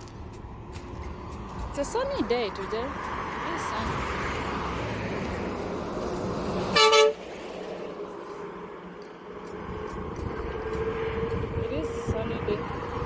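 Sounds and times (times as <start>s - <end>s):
road traffic rumble: 0.0s - 13.0s
vehicle horn toot: 6.7s - 7.2s.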